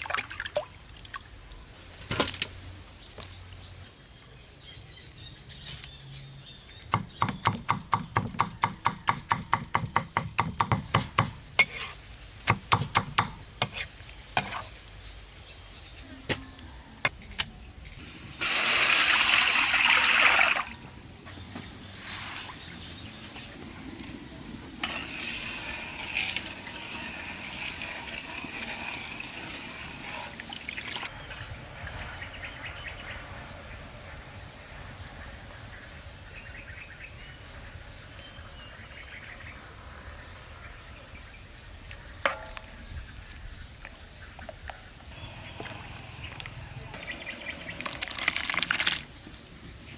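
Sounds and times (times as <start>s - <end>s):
faint birds: 0.0s - 18.4s, 19.0s - 49.9s
insects: 13.3s - 49.9s.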